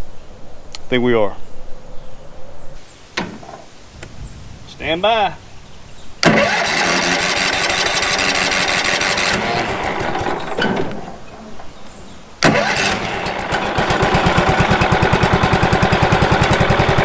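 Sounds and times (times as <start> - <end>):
sawmill engine running: 6.2 - 17.0.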